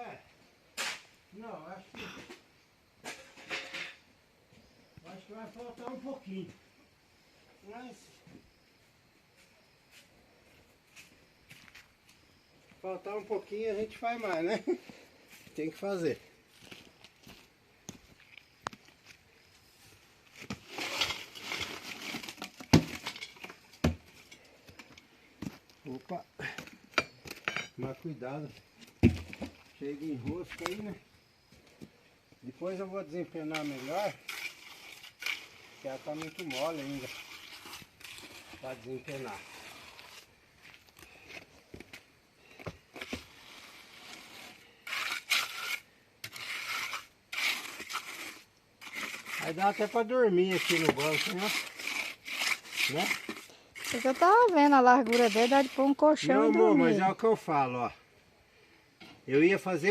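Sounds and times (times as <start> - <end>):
tool scraping wet mortar: 20.3 - 28.0, 33.2 - 41.5, 42.9 - 57.1.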